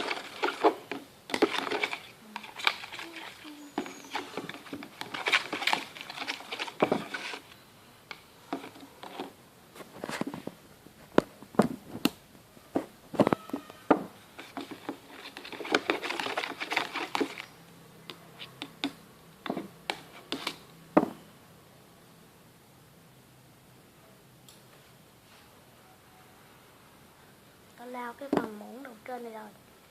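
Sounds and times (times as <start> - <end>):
spoon stirring liquid: 0.0 - 7.6.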